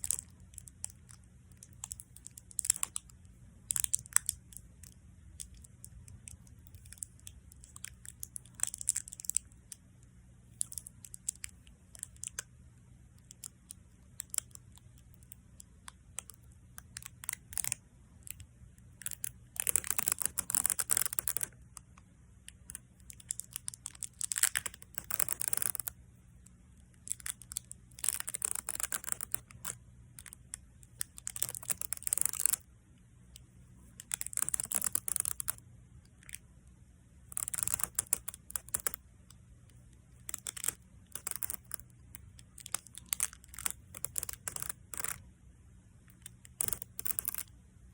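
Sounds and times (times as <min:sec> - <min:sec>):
adhesive tape crackling: 0:00.0 - 0:09.6, 0:13.2 - 0:21.6, 0:22.5 - 0:26.0, 0:26.9 - 0:32.6, 0:33.9 - 0:35.6, 0:37.3 - 0:39.0, 0:40.1 - 0:45.2, 0:46.1 - 0:47.5
tape peeling: 0:19.0 - 0:21.5, 0:22.7 - 0:25.9, 0:27.0 - 0:32.6, 0:33.9 - 0:35.6, 0:37.3 - 0:39.0, 0:40.2 - 0:45.2, 0:46.1 - 0:47.5.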